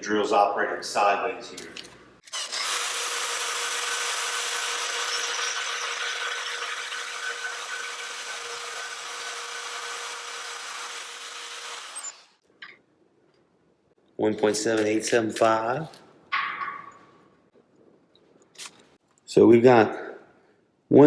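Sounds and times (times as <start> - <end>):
drill bit cutting through steel: 2.3 - 12.4
drill motor tone: 2.3 - 12.4.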